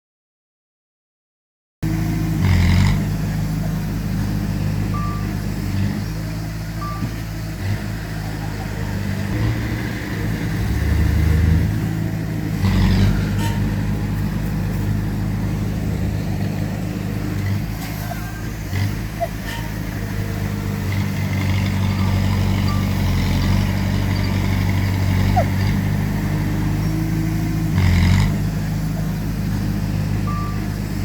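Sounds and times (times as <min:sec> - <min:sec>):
heavy machinery diesel engines: 0:01.8 - 0:31.0
short beeps: 0:04.9 - 0:05.3, 0:06.8 - 0:07.2, 0:22.6 - 0:23.1, 0:30.3 - 0:30.7.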